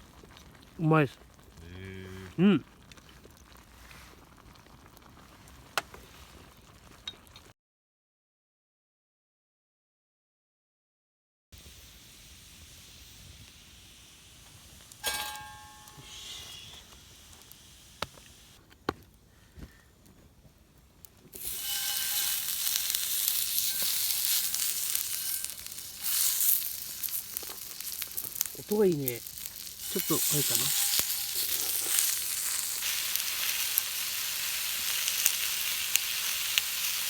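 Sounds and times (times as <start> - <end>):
food sizzling on a griddle: 0.0 - 7.1, 11.6 - 18.6, 21.3 - 37.0
ringing metal clink: 15.0 - 16.2.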